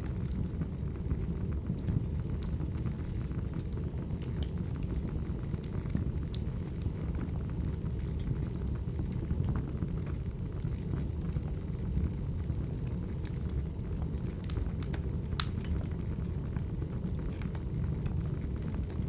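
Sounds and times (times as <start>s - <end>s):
fire flames rumbling: 0.0s - 19.0s
firewood crackling and popping: 0.0s - 19.0s.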